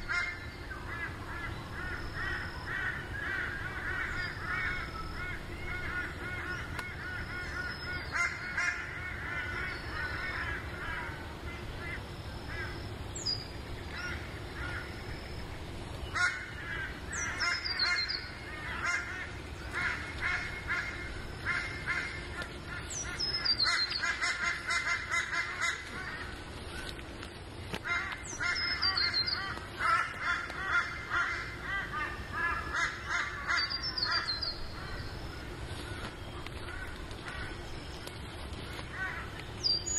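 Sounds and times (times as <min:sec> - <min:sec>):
harsh rapid bird calls: 0:11.5 - 0:27.0, 0:27.8 - 0:39.9.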